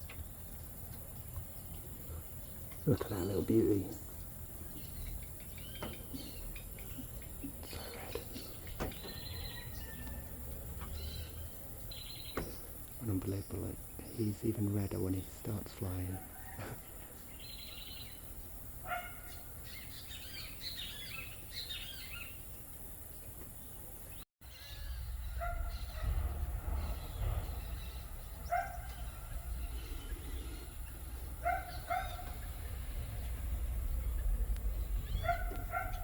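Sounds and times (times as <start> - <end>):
birds chirping: 0.0 - 36.0
low rumble: 24.7 - 36.0.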